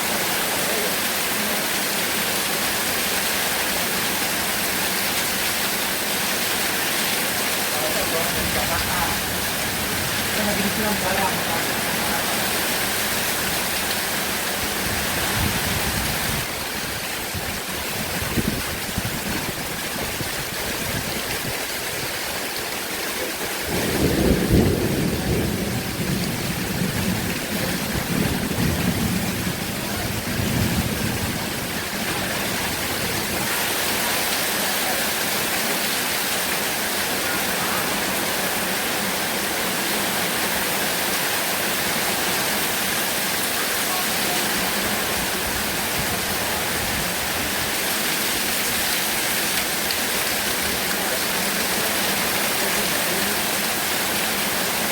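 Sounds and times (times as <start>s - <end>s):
heavy rain falling: 0.0s - 54.9s
thunder rumbling: 8.0s - 16.7s, 23.6s - 33.6s.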